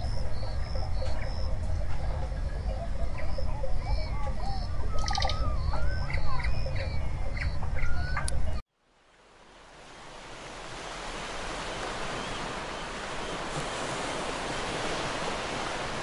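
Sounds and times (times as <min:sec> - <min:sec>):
pulsing insect chorus: 0:00.0 - 0:07.5
birds chirping and whistling: 0:00.0 - 0:08.6
low ambient rumble: 0:00.0 - 0:08.6.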